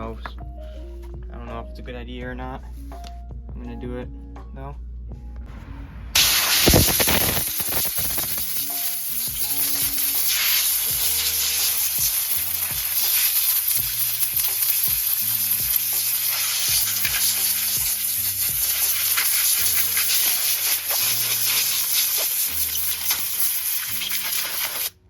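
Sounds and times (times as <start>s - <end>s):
compressed air hissing: 6.2s - 25.0s.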